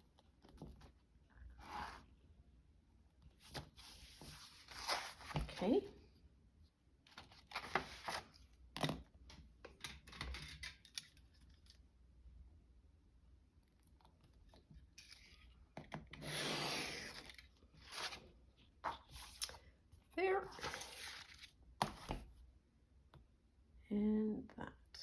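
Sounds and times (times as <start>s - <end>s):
paper cutting rasp: 16.2s - 17.3s.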